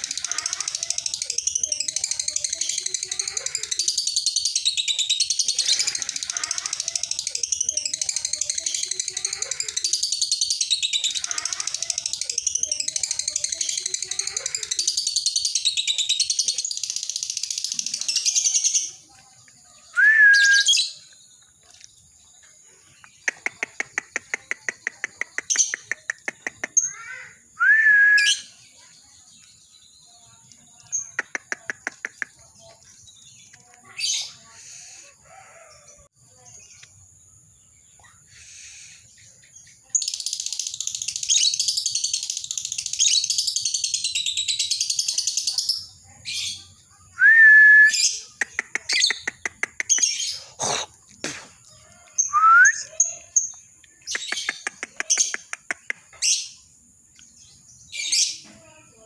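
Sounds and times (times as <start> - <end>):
lovebird chattering song: 0.0 - 19.1, 22.8 - 27.3, 28.3 - 35.7, 36.3 - 46.8, 47.9 - 58.5
rising bird chirps: 19.9 - 21.2.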